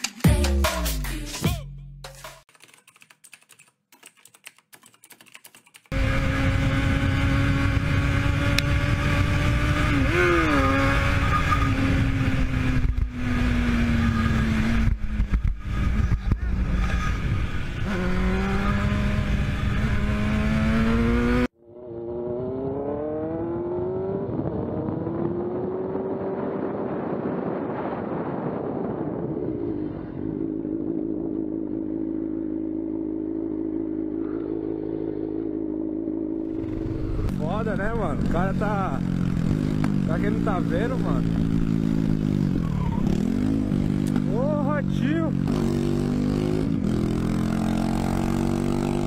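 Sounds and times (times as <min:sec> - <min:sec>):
motorcycle engine running hard: 0:05.9 - 0:21.5.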